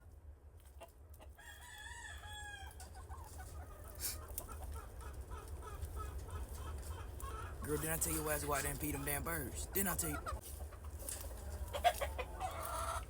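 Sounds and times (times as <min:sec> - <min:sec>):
chickens clucking: 0:00.6 - 0:13.0
rooster crowing: 0:01.4 - 0:02.8.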